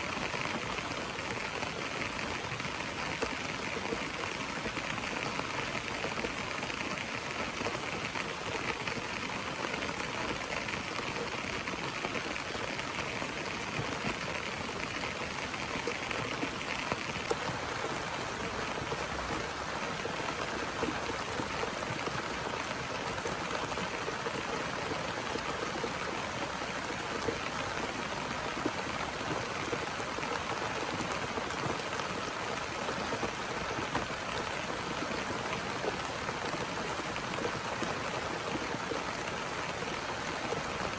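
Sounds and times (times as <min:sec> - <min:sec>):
heavy rain falling: 0:00.1 - 0:40.9.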